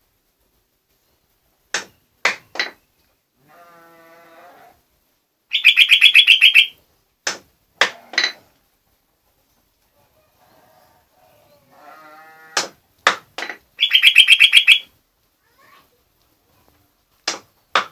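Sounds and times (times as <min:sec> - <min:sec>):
bird calling and chattering: 0:05.5 - 0:06.8, 0:13.8 - 0:14.9.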